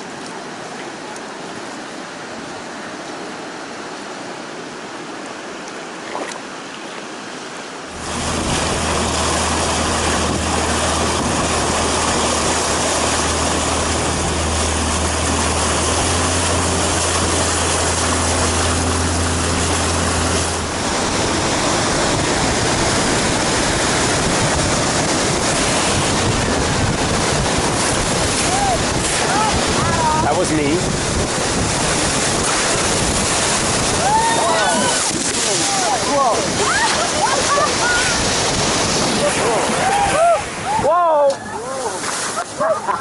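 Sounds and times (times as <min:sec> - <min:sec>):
river water rushing: 0:00.0 - 0:43.0
low hum: 0:07.9 - 0:35.4.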